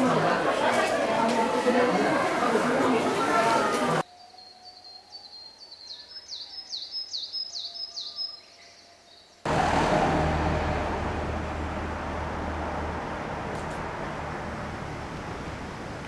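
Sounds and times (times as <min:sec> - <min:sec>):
loud steady rushing noise: 0:09.5 - 0:16.0
low hum: 0:09.5 - 0:16.0.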